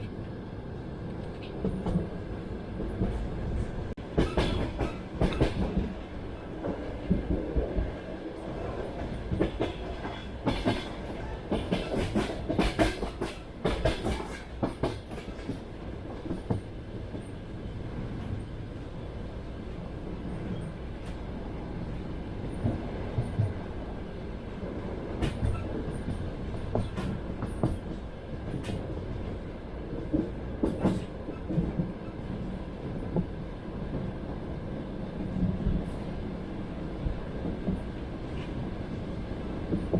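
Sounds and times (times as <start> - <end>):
train wheels clattering on rails: 4.0 - 17.4, 25.1 - 33.3.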